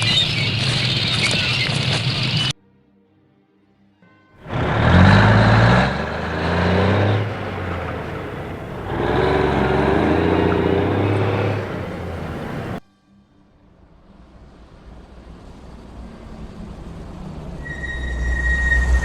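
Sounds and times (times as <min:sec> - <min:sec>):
heavy vehicle engine revving: 0:04.5 - 0:12.8.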